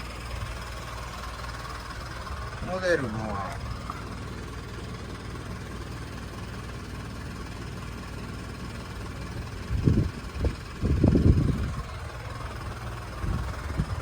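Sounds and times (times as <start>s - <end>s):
low rumbling bursts: 0.0s - 5.4s, 9.0s - 14.0s
forklift diesel engine idling: 0.0s - 14.0s.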